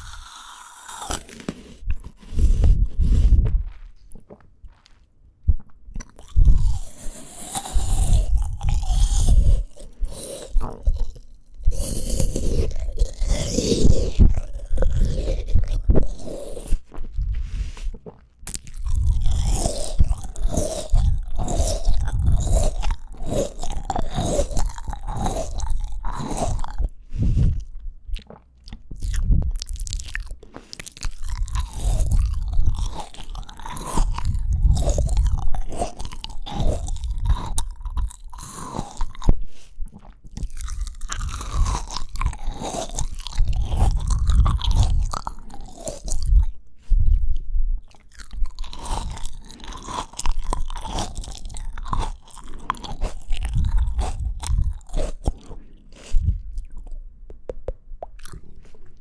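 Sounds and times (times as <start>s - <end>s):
crunching and chewing fruit: 0.0s - 59.0s.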